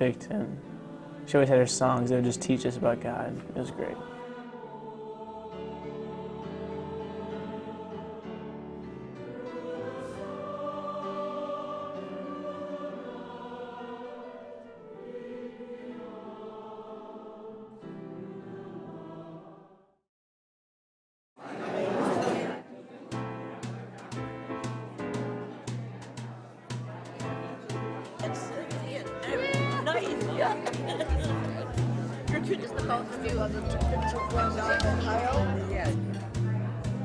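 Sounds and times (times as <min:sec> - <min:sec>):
choir singing sustained chords: 0:00.0 - 0:20.0.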